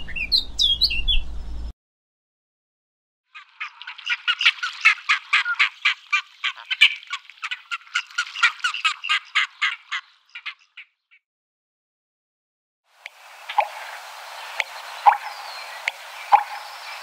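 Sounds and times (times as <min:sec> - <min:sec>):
bird squawking: 0:03.3 - 0:11.2, 0:13.5 - 0:17.0.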